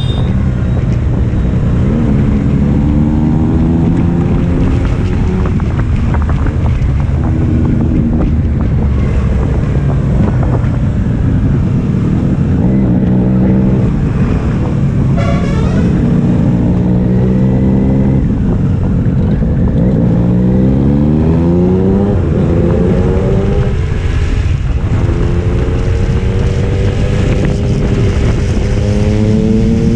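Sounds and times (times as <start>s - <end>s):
motorcycle engine and exhaust: 0.0s - 29.9s
wind on microphone: 0.0s - 29.9s.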